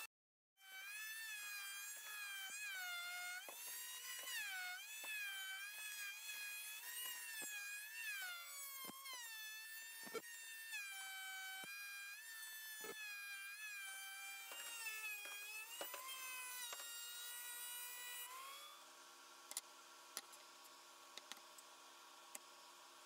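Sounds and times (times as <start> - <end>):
power carving tool whining: 0.6 - 18.9.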